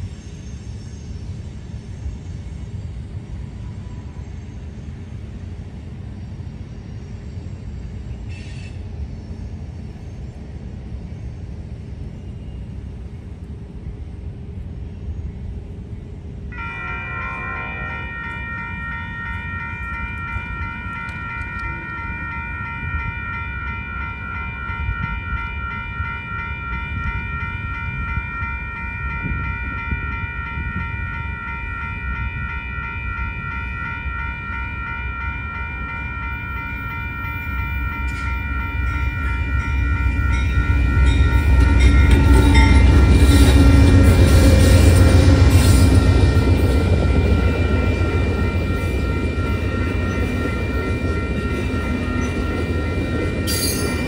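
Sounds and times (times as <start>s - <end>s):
passenger train rumbling past: 0.0s - 54.0s
railroad crossing bell ringing: 16.5s - 54.0s.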